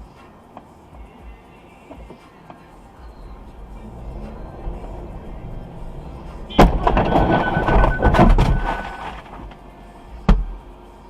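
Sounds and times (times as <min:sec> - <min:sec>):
background music: 0:00.0 - 0:11.0
loud bang: 0:03.3 - 0:09.0
clattering and rattling: 0:03.3 - 0:09.6.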